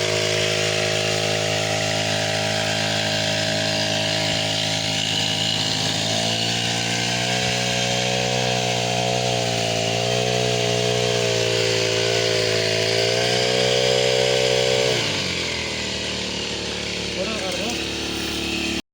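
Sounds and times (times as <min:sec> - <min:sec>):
chainsaw cutting at high revs: 0:00.0 - 0:18.8.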